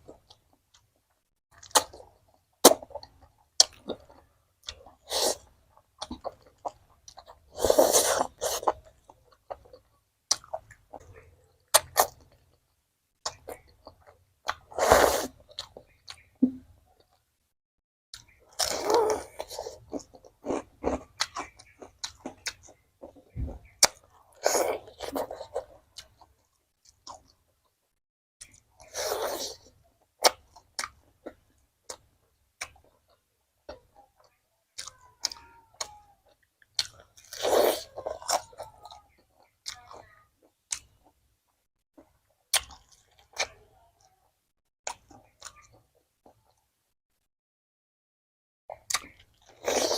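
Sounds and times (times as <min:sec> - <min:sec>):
small clicks and mouth sounds: 0:00.0 - 0:17.3, 0:18.1 - 0:46.8, 0:48.7 - 0:49.9
crunchy bites and chewing: 0:01.5 - 0:12.6, 0:18.2 - 0:27.4, 0:34.8 - 0:41.2, 0:42.0 - 0:43.6, 0:48.7 - 0:49.9.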